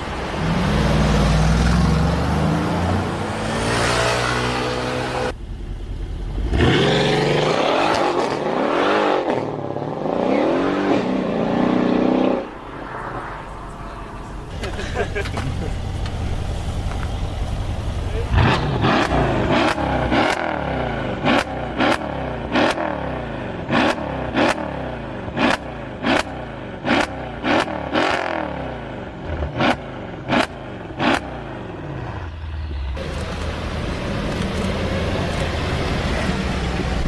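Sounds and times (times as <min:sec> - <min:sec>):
car engine revving: 0:00.0 - 0:37.0
exhaust cracks: 0:10.9 - 0:20.5.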